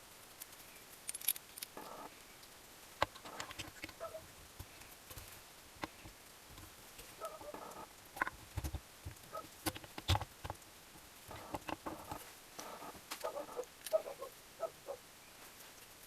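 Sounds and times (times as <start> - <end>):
small metal parts clinking: 0.4 - 1.8.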